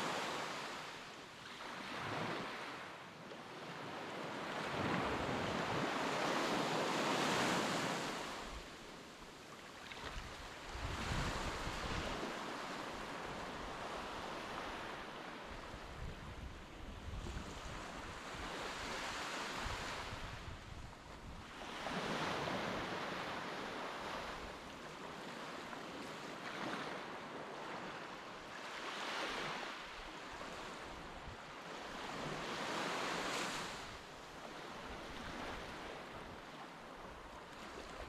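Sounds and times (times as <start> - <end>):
wind rumbling on microphone: 10.1 - 12.3, 15.5 - 19.0, 19.6 - 22.9.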